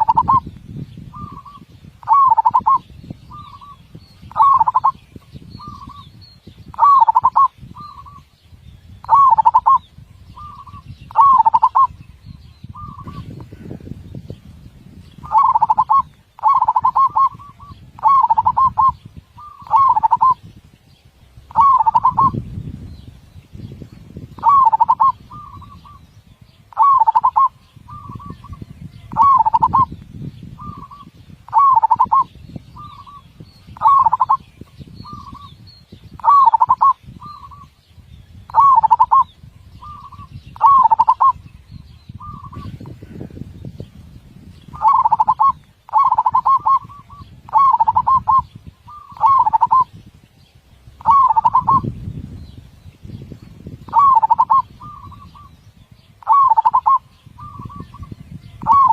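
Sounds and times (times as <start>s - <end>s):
dove cooing: 0.0s - 0.4s, 1.1s - 5.0s, 6.7s - 8.2s, 9.0s - 12.0s, 15.2s - 20.4s, 21.5s - 22.4s, 24.4s - 26.0s, 26.7s - 29.9s, 30.6s - 33.2s, 33.8s - 34.4s, 36.2s - 37.7s, 38.5s - 41.4s, 44.7s - 49.9s, 51.0s - 51.9s, 53.9s - 55.5s, 56.2s - 58.9s.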